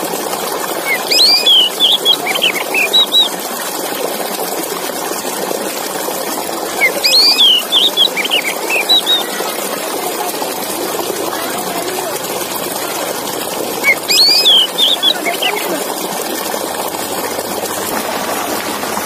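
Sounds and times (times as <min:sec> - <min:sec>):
bird singing whistled notes: 0:00.9 - 0:03.3, 0:06.8 - 0:09.3, 0:13.8 - 0:15.7.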